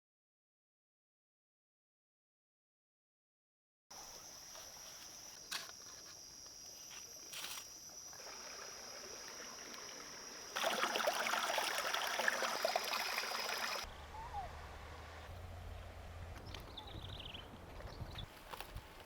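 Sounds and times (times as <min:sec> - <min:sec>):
insect drone: 0:03.9 - 0:13.9.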